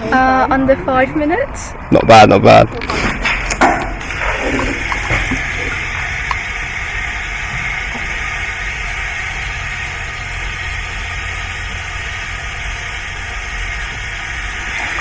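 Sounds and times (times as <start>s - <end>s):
steady hissing rush: 4.0s - 15.0s.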